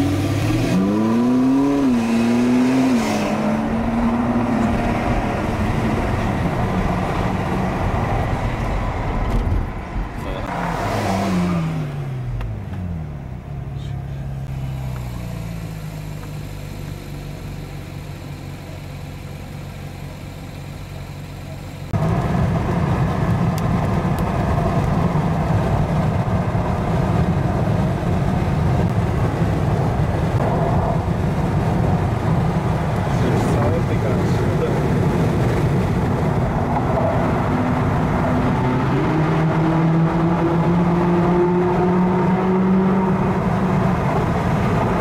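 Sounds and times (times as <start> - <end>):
engine running: 0.0 - 45.0.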